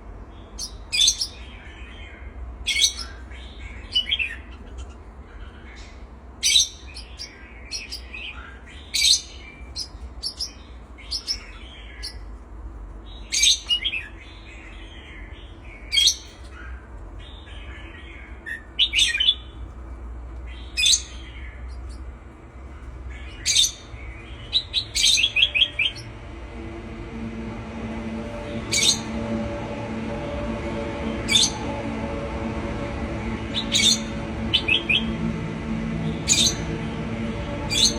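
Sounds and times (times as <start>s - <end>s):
low steady hum: 25.2s - 37.9s.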